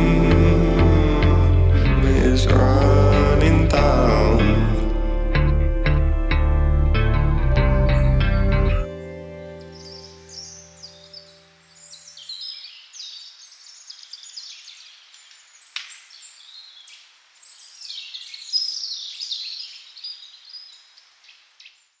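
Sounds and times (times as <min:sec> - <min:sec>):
low song notes: 0:00.0 - 0:11.6
songbirds singing and chirping: 0:07.7 - 0:22.0.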